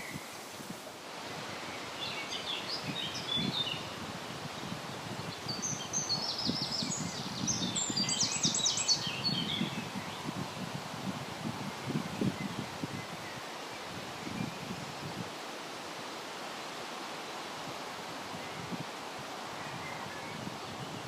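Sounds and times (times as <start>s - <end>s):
low wind noise: 0.0s - 21.0s
songbird chirping: 1.4s - 4.0s, 4.6s - 10.6s.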